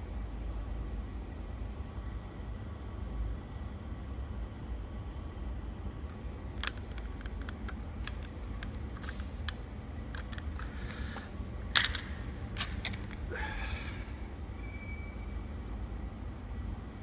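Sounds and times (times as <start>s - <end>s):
sharp clicks: 6.6s - 9.6s, 10.2s - 13.2s.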